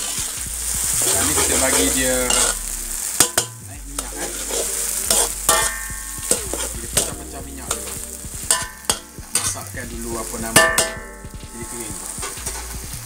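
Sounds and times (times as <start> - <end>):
chili paste sizzling in oil: 0.0 - 13.0
metal ladle scraping a wok: 0.9 - 9.6.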